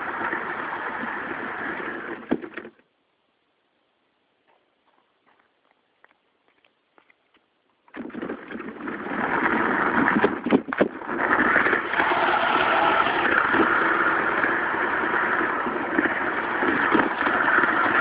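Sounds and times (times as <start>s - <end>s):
rough electric motor drone: 11.0s - 18.0s.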